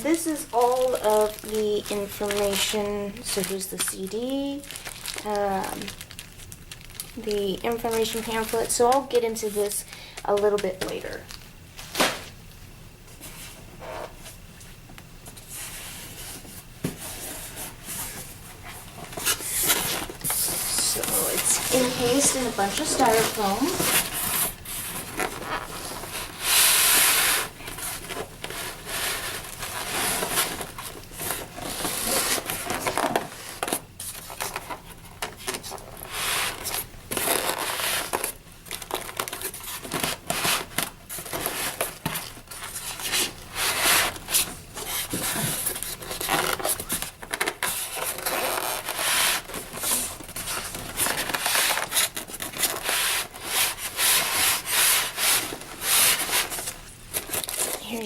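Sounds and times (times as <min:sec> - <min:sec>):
styrofoam scraping cardboard: 0:15.4 - 0:34.9, 0:35.6 - 0:58.0.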